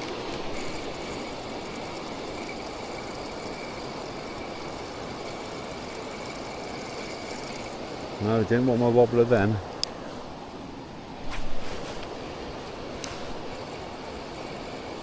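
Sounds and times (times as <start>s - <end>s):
water rushing over a weir: 0.0s - 9.8s.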